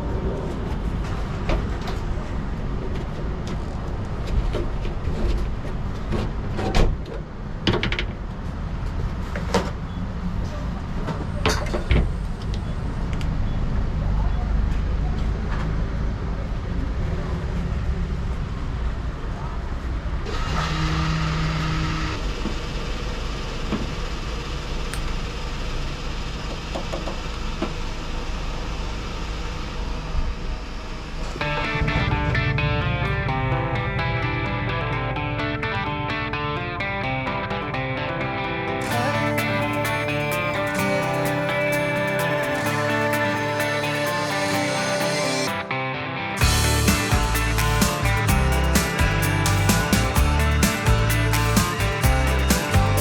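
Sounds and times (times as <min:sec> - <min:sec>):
road noise: 0:00.0 - 0:36.9, 0:38.5 - 0:53.0
steady tone: 0:31.4 - 0:37.3, 0:38.8 - 0:53.0
truck engine rumbling: 0:38.8 - 0:45.6, 0:46.4 - 0:53.0.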